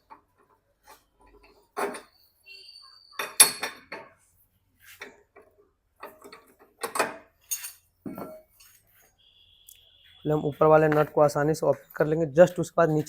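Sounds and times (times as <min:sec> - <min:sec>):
metal hand tools clinking: 0:07.4 - 0:07.9.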